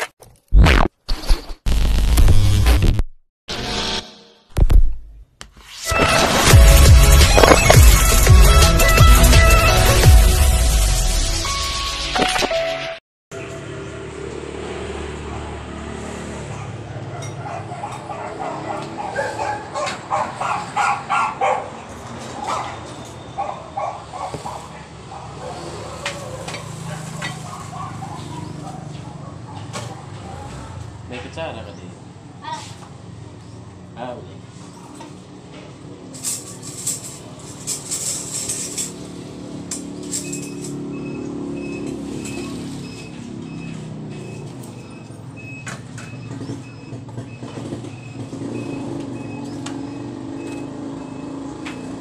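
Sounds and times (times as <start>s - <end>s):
dog barking: 16.4s - 30.8s
dishes and utensils clattering: 26.0s - 28.6s, 34.8s - 39.2s.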